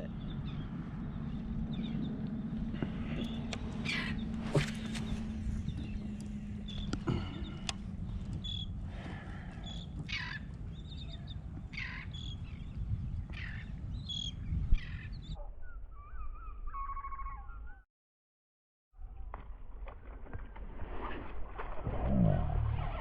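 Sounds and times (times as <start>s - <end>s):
steady low rumble: 0.0s - 15.3s
wavering bird calls: 2.9s - 12.6s, 13.3s - 17.8s
bird squawking calls: 3.8s - 5.2s, 11.7s - 12.3s
high bird chirps: 13.4s - 17.8s.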